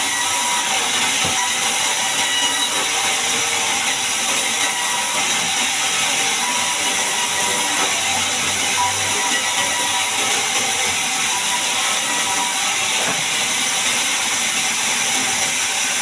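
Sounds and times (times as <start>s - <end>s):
band saw cutting log: 0.0s - 16.0s.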